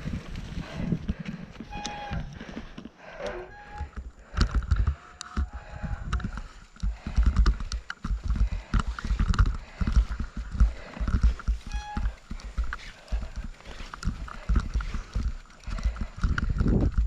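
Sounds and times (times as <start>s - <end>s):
crackles: 0.0s - 17.0s
wind buffeting microphone: 3.8s - 17.0s.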